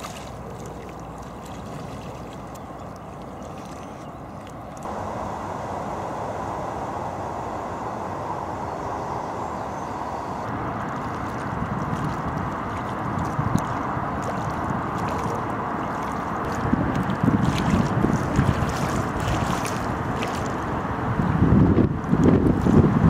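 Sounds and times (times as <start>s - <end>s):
wind noise on microphone: 4.8s - 23.0s.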